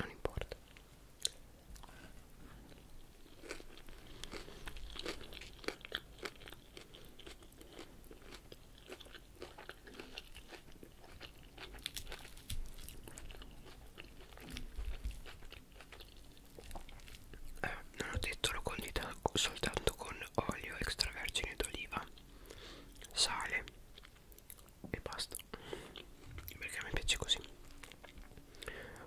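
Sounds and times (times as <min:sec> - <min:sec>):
crunching salad leaves: 0:03.3 - 0:17.6.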